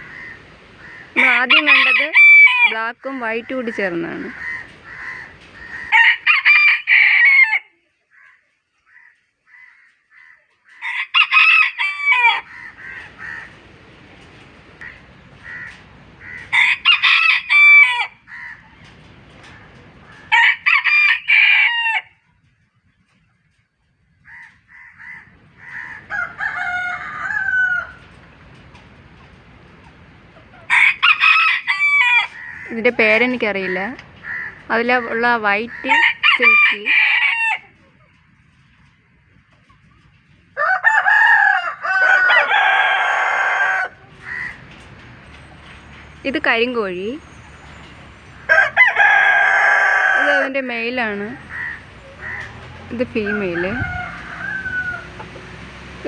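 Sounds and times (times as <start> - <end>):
rooster crowing: 0.1 - 2.8, 4.2 - 8.3, 8.9 - 13.5, 15.4 - 18.6, 19.5 - 22.2, 24.3 - 28.2, 30.7 - 35.1, 35.7 - 37.7, 40.6 - 44.6, 48.3 - 55.8.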